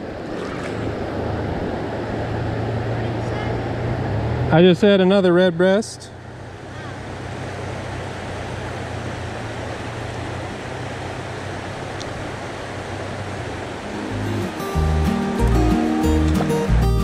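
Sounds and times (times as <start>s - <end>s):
river water rushing: 0.0s - 17.0s
music: 13.8s - 17.0s.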